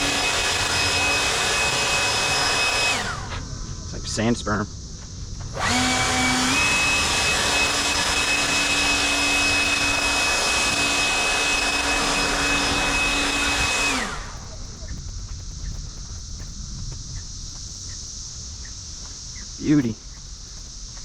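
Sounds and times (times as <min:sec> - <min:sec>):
leaf blower whining: 0:00.0 - 0:04.3, 0:05.4 - 0:16.5.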